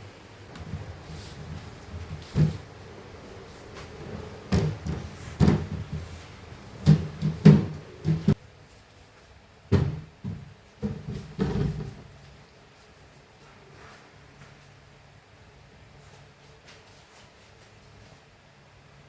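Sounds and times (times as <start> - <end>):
faint steady hiss: 0.0 - 19.0
household objects knocking and clunking: 0.5 - 2.8, 3.7 - 8.4.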